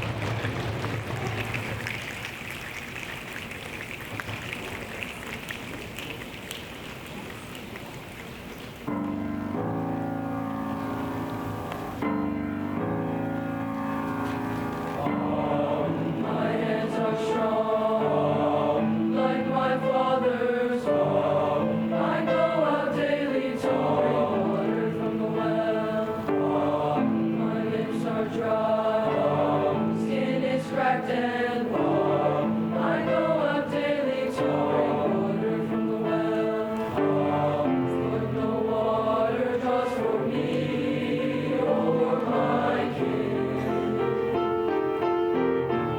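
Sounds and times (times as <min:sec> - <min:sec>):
boys' choir singing: 0:14.9 - 0:44.4.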